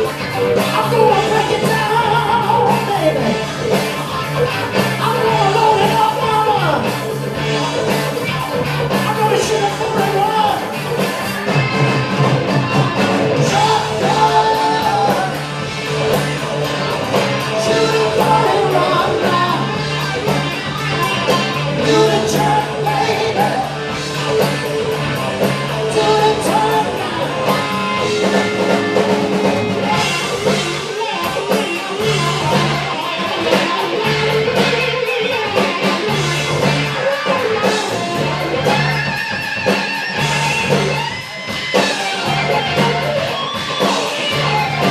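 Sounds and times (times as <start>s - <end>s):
drum kit: 0.0s - 44.9s
electric guitar: 0.0s - 44.9s
person singing: 0.4s - 3.8s, 5.0s - 8.0s, 9.0s - 10.8s, 11.5s - 16.2s, 17.3s - 24.4s, 25.6s - 28.7s.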